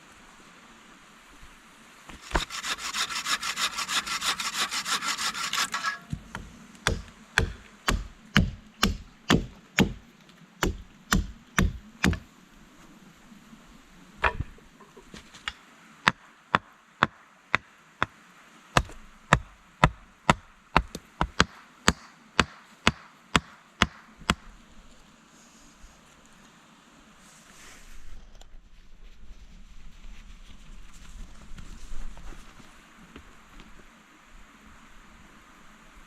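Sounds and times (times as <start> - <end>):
wood being chopped: 2.2 - 2.6, 5.5 - 10.0, 10.6 - 12.3, 18.8 - 24.5.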